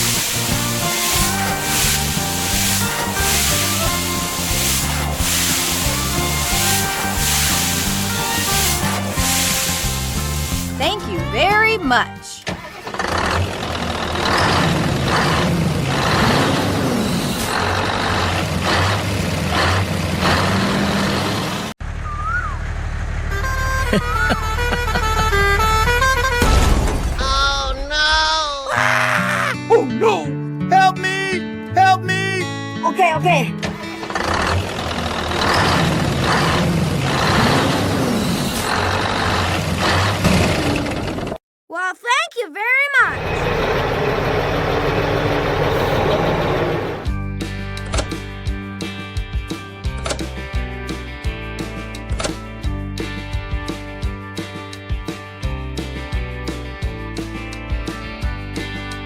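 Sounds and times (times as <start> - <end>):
engine humming with hissing surges: 0.0 - 11.4, 43.2 - 47.1.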